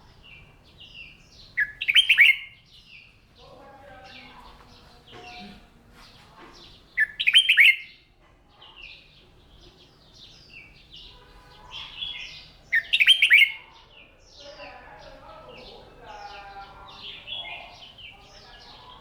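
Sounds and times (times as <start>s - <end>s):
bulbul singing: 0.0s - 3.1s, 10.2s - 19.0s
other birds chirping: 0.0s - 19.0s.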